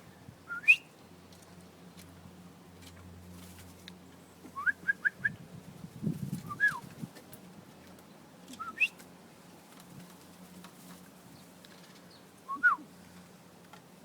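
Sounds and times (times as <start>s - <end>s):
bird whistled calls: 0.5s - 0.9s, 8.6s - 9.0s, 12.5s - 12.8s.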